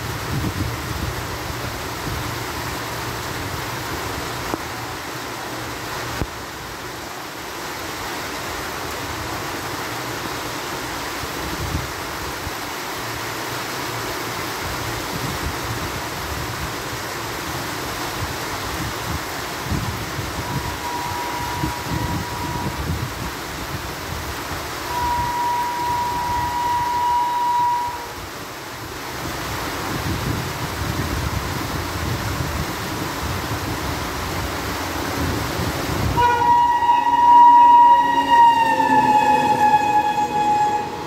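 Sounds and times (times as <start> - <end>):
wind rumble on microphone: 0.0 - 4.6, 14.6 - 27.1, 29.0 - 36.5
heavy rain hissing: 0.0 - 41.0.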